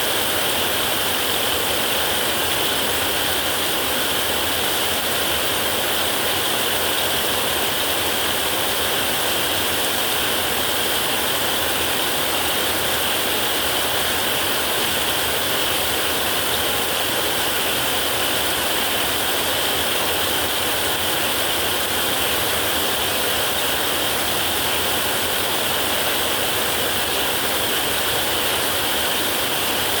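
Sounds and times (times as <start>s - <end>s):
heavy rain on a metal roof: 0.0s - 30.0s.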